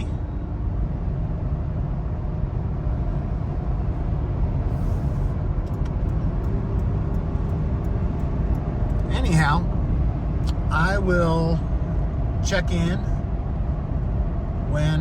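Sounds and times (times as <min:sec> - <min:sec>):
car road and engine noise: 0:00.0 - 0:15.0
faint light ticks: 0:05.6 - 0:09.1.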